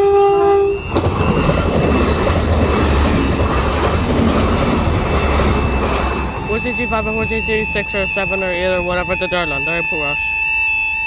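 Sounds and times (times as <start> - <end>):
train horn: 0.0 - 1.0
train wheels rumbling and rattling: 0.0 - 10.1
crossing alarm steady tone: 0.0 - 11.0.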